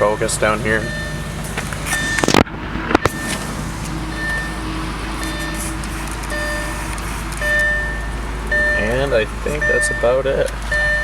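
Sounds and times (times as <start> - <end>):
car engine idling: 0.0 - 11.0
short high beep: 0.8 - 1.2, 5.2 - 8.9.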